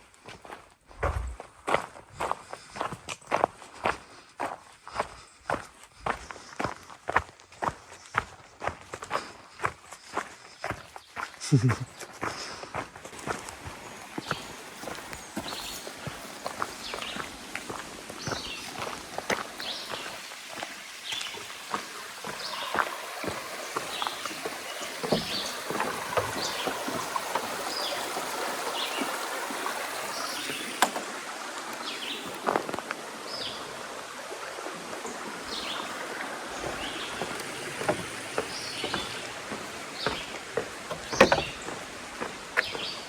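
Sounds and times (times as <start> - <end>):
footsteps on wet trail: 0.0 - 43.0
rain hissing: 13.2 - 43.0
sharp clicks and knocks: 40.1 - 41.8.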